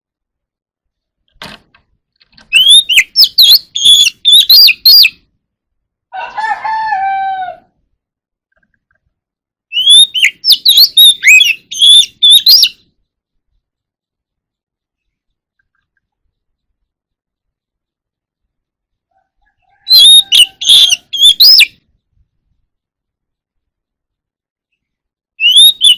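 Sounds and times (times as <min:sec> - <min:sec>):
bird singing whistled notes: 0:02.5 - 0:05.3, 0:09.7 - 0:13.0, 0:19.9 - 0:22.0, 0:24.7 - 0:25.9
lower drawn-out bird call: 0:19.1 - 0:21.8.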